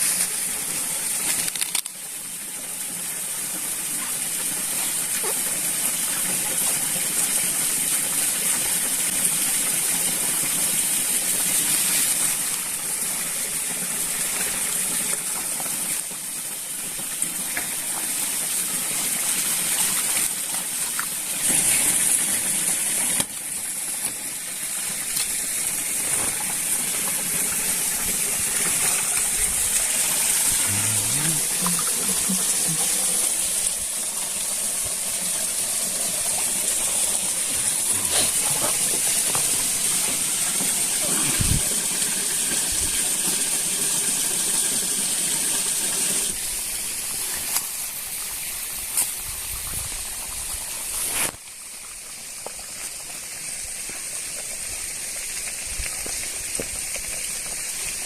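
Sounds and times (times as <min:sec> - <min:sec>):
flowing water rushing: 0:00.0 - 0:58.0
high-pitched hiss: 0:28.8 - 0:42.2.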